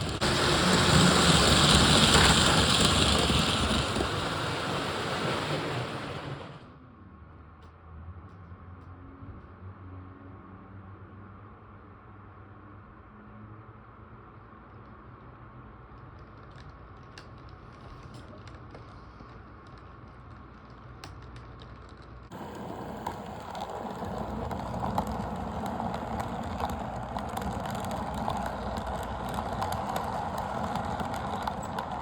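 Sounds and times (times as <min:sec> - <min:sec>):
model locomotive motor running: 0:00.0 - 0:06.6, 0:22.3 - 0:32.0
wheels clicking over track: 0:00.0 - 0:06.6, 0:21.6 - 0:32.0.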